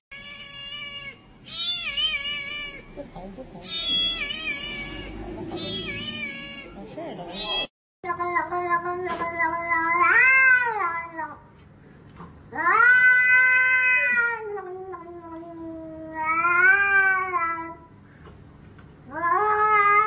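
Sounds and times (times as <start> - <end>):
cat meowing: 0.1 - 3.0, 3.6 - 7.7, 12.5 - 17.8, 19.1 - 20.0.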